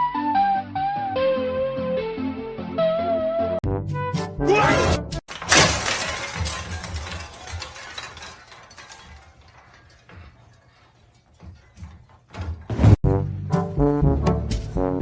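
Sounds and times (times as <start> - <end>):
something shattering: 5.3 - 11.9
clattering and rattling: 5.3 - 13.0.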